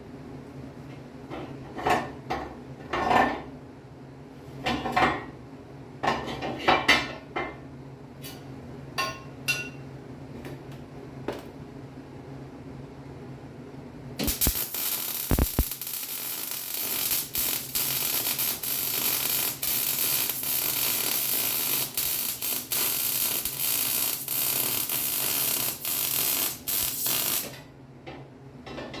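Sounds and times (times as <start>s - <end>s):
steady low hum: 12.2s - 28.0s
welding arc crackling and hissing: 14.2s - 27.6s.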